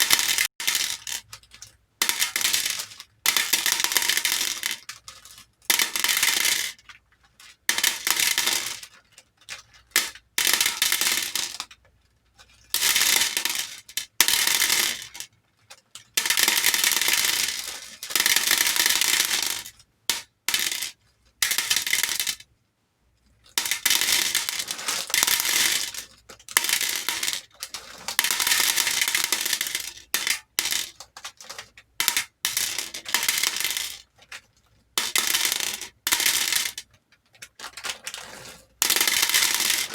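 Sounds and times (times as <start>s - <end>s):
beads clattering into a bowl: 16.2s - 22.4s, 23.6s - 31.3s, 32.0s - 34.4s, 35.0s - 36.9s, 37.7s - 39.9s.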